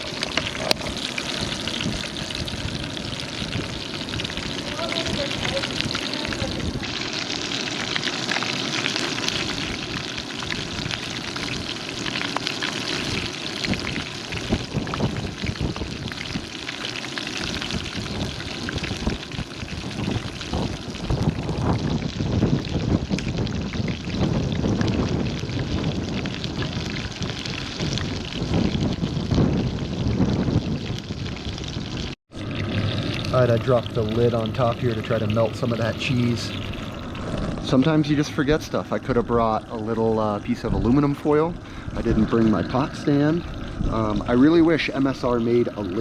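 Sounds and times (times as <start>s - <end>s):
chicken sizzling in hot oil: 0.0s - 46.0s
low irregular rumble: 32.4s - 46.0s.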